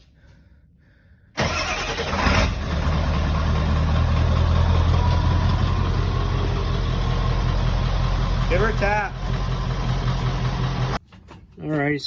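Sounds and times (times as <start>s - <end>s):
diesel engine revving and idling: 1.4s - 11.0s.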